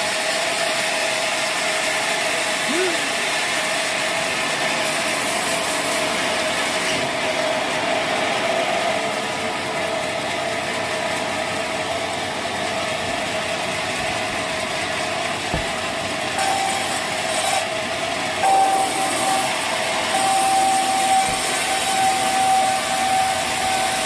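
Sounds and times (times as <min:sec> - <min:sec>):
sawmill machinery running: 0:00.0 - 0:24.0
low thump: 0:15.5 - 0:15.8.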